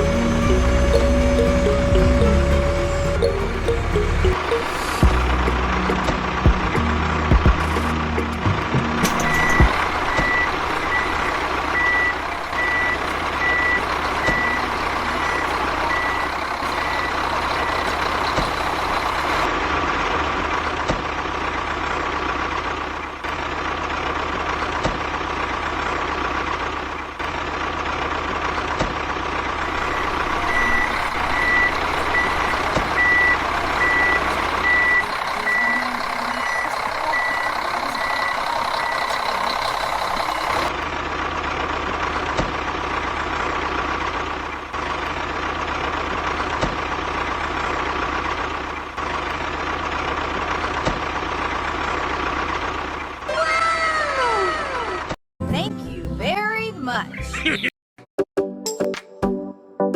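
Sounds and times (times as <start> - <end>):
truck reversing alarm beeping: 0.0 - 19.5, 29.6 - 40.8
engine running: 0.0 - 53.4.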